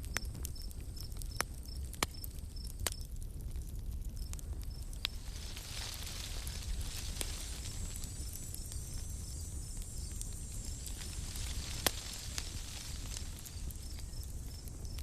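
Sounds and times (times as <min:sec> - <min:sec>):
campfire crackling and popping: 0:00.0 - 0:15.0
insects chirping: 0:00.1 - 0:03.1, 0:03.8 - 0:15.0.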